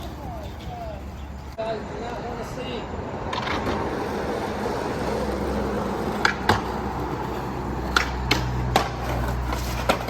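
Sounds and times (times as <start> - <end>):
skateboards knocking on pavement: 3.2 - 10.0.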